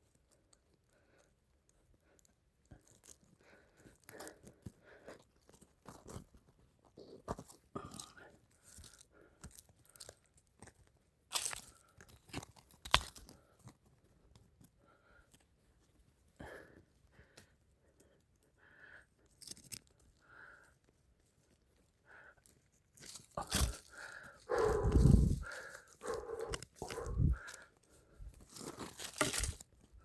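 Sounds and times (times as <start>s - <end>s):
soil and roots crunching: 7.0s - 13.8s, 22.2s - 30.0s.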